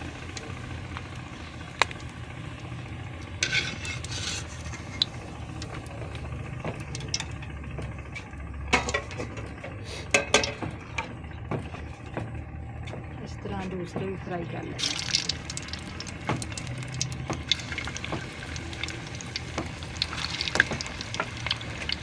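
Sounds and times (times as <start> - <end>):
low hum: 0.0 - 22.0
spoon scraping a pan: 3.4 - 5.1
food sizzling in oil: 14.8 - 22.0.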